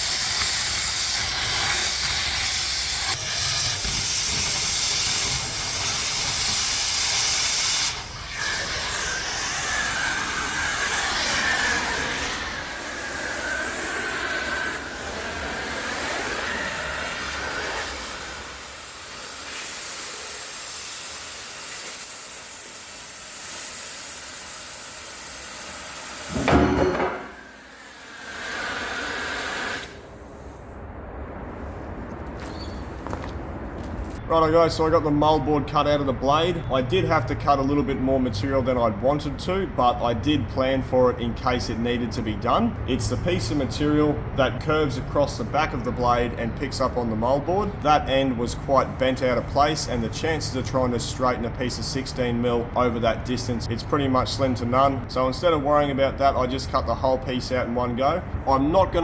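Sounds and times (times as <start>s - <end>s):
cutting torch hissing: 0.0s - 30.8s.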